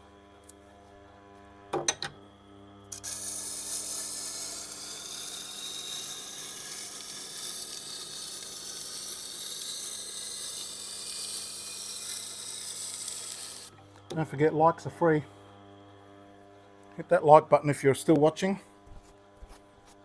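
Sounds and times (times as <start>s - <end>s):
knife grinding on sharpening wheel: 2.9s - 13.9s.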